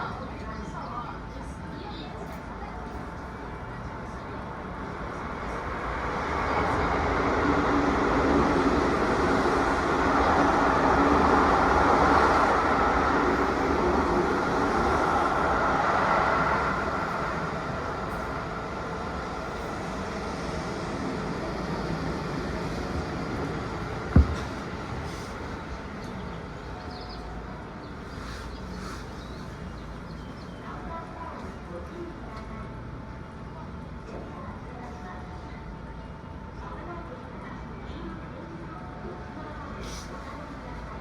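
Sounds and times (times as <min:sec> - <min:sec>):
train wheels rumbling on rails: 0:04.4 - 0:30.0
sharp knock: 0:24.1 - 0:24.6.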